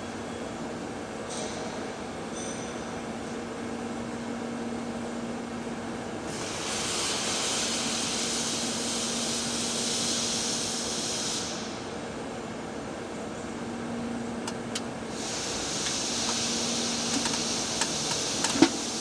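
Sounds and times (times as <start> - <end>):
welding arc hissing: 15.1 - 19.0.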